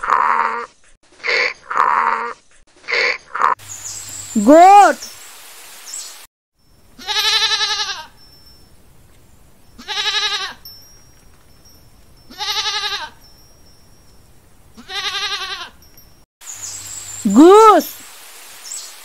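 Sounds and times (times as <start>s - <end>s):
goat bleating: 7.0s - 8.1s, 9.8s - 10.6s, 12.3s - 13.2s, 14.8s - 15.8s.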